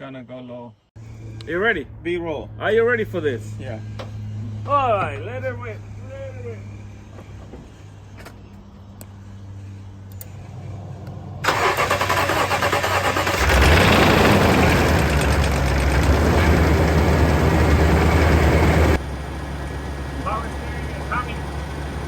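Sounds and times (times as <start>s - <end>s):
engine running: 1.0s - 22.0s
starter cranking engine: 11.4s - 19.0s.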